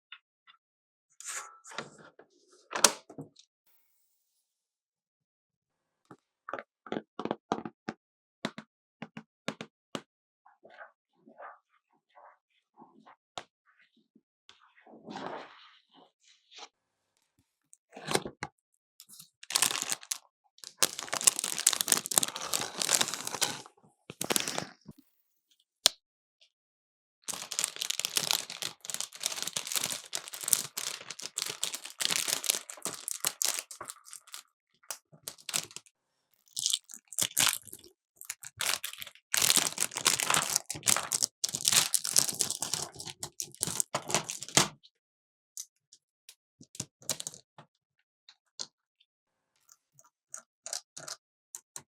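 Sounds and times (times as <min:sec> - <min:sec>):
plastic packaging crinkling and tearing: 0:19.4 - 0:24.7, 0:27.3 - 0:34.4, 0:35.2 - 0:35.9, 0:36.5 - 0:44.6.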